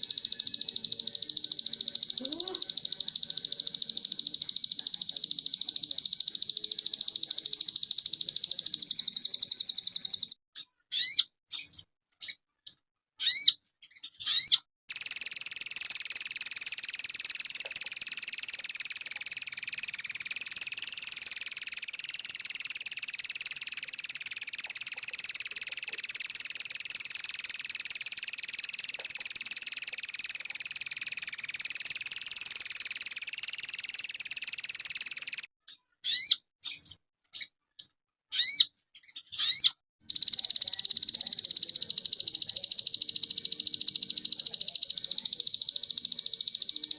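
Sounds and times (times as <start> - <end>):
bird buzzing trill: 0.0 - 10.3, 14.9 - 35.5, 40.0 - 46.9
bird sweeping chirps: 0.0 - 10.3, 14.2 - 35.5
songbird fast high trill: 0.0 - 10.4, 14.2 - 35.5, 39.4 - 46.9.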